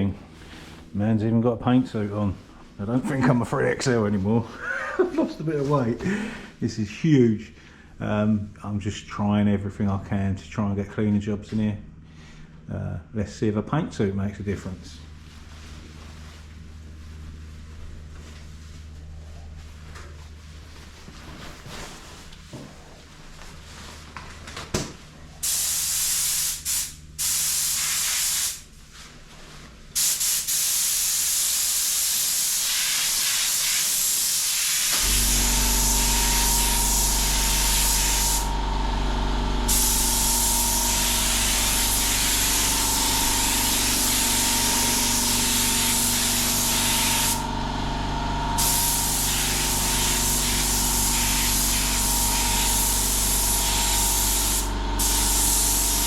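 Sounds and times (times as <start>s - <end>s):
paint spray gun hissing: 25.4s - 28.7s, 30.0s - 38.5s, 39.6s - 47.5s, 48.6s - 56.0s
machine humming: 34.9s - 56.0s.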